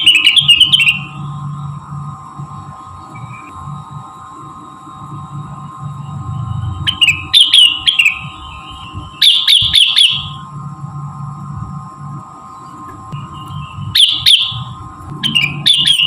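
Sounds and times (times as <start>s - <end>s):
bird chirping song: 0.0s - 1.2s, 9.2s - 10.4s, 12.5s - 16.0s
steady hum: 0.0s - 16.0s.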